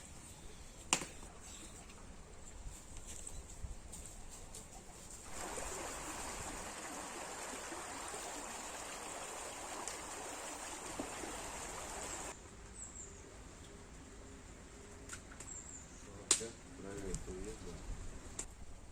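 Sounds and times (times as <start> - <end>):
running water splashing: 5.2 - 12.4.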